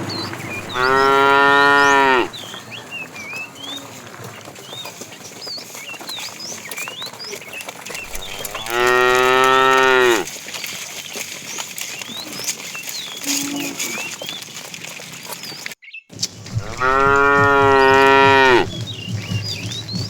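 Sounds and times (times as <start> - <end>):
small birds chirping: 0.0 - 20.0
cow mooing: 0.5 - 2.4, 8.1 - 10.3, 13.2 - 14.1, 16.6 - 18.8.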